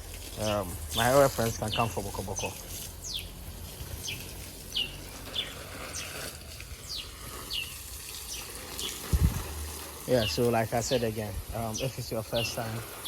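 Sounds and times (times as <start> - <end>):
faint outdoor background: 0.0 - 13.0
bird chirping: 0.3 - 3.4, 4.0 - 9.1, 10.1 - 12.8.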